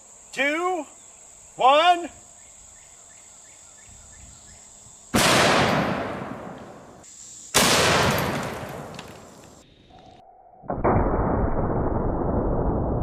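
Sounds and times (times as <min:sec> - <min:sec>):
rifle shots echoing: 0:05.2 - 0:07.0, 0:07.6 - 0:09.3.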